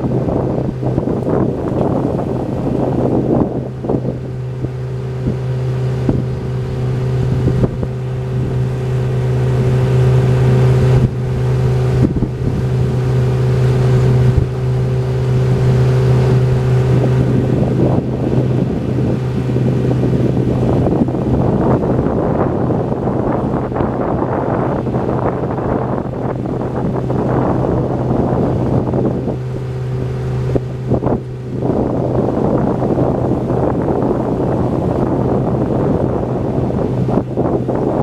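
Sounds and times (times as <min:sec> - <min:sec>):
boat motor humming: 0:00.0 - 0:38.0
wind buffeting microphone: 0:00.0 - 0:38.0.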